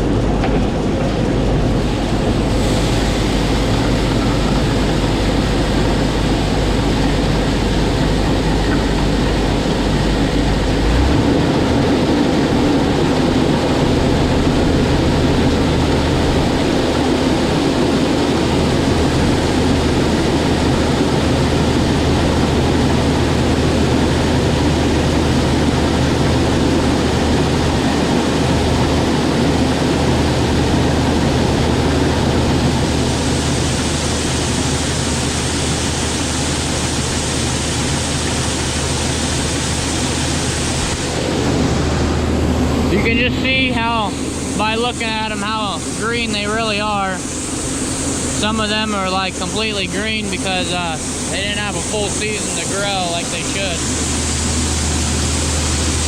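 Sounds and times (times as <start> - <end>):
tractor engine running: 0.0 - 56.0
grain auger running: 0.1 - 56.0
hiss of moving grain: 1.9 - 8.4.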